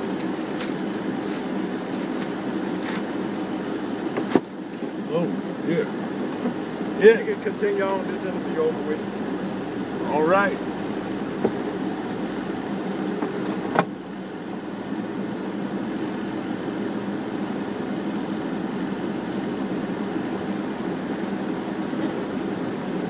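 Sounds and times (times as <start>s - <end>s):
air-conditioning fan hum: 0.0s - 23.0s
car engine idling: 0.0s - 23.0s.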